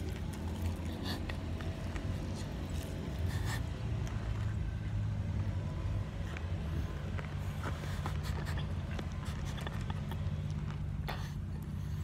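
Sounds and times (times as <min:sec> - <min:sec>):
breathy noises: 0:00.0 - 0:04.6, 0:06.1 - 0:12.0
person chewing food: 0:00.0 - 0:04.7, 0:06.2 - 0:12.0
steady low rumble: 0:00.0 - 0:12.0.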